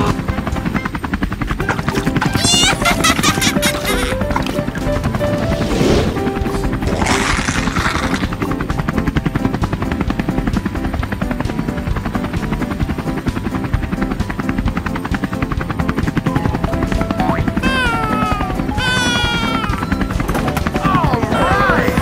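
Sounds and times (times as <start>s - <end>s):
helicopter rotor chopping: 0.0s - 22.0s
music: 0.0s - 22.0s
falling pitched tone: 16.3s - 22.0s.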